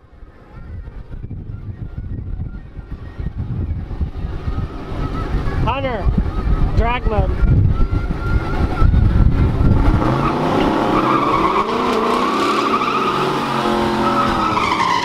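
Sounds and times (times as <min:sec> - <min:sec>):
low engine rumble: 0:00.0 - 0:14.8
car engine at high revs: 0:07.4 - 0:15.0
tyres squealing: 0:09.9 - 0:15.0.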